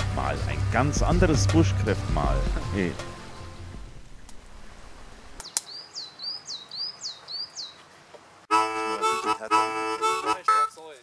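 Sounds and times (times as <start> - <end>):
reedy chords music: 0.0 - 4.1, 8.5 - 10.8
bird chirping: 5.4 - 7.9.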